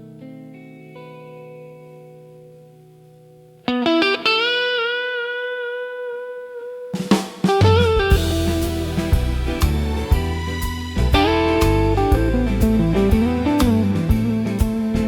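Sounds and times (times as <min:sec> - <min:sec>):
electric guitar with bent note: 0:03.6 - 0:15.0
drums: 0:06.9 - 0:15.0
bass guitar: 0:07.4 - 0:15.0.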